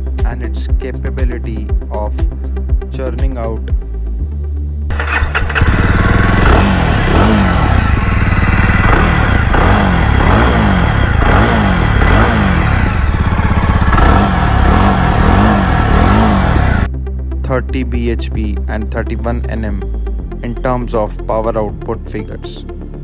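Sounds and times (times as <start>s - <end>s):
motorcycle engine revving: 4.9s - 16.9s.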